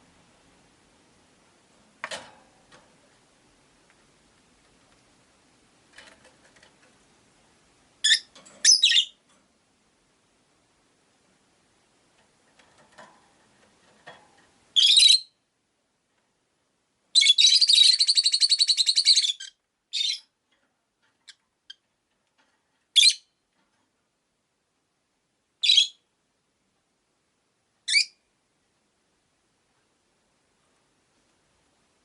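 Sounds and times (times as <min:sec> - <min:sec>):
lovebirds chirping: 0:08.0 - 0:09.2, 0:14.8 - 0:15.4, 0:17.2 - 0:20.3.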